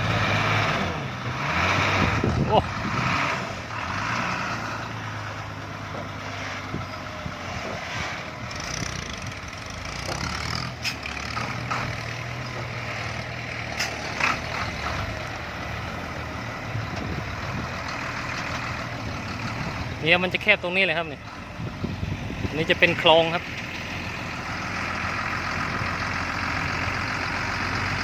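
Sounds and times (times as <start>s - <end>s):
truck diesel engine under load: 0.0s - 28.0s.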